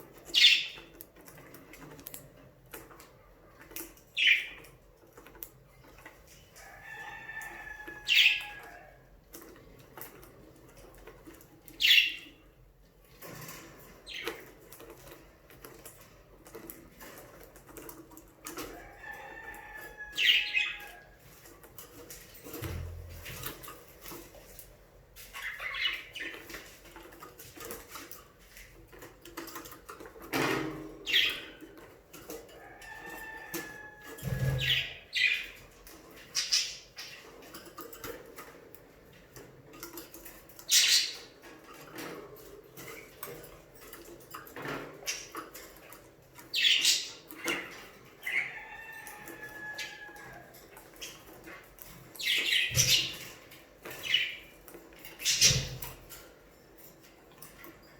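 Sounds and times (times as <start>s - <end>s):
budgerigars chirping: 34.3s - 35.5s.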